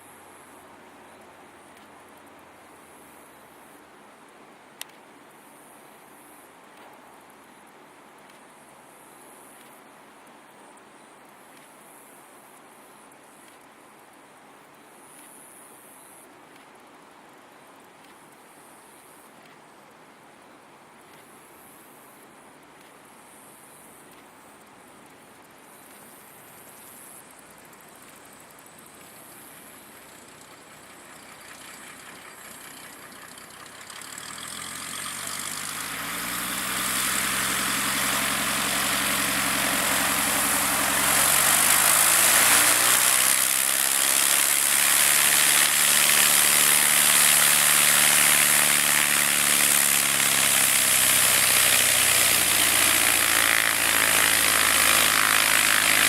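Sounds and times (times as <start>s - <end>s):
light aircraft piston engine: 27.2s - 56.0s.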